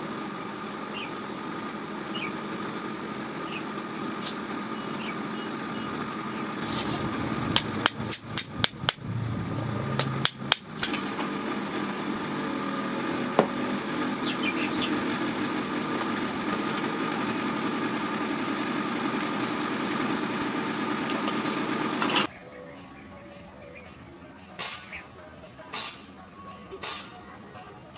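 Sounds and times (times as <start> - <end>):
steady background hum: 0.0 - 27.9
hammer strikes on steel: 7.6 - 9.0, 10.0 - 11.1, 24.6 - 27.2.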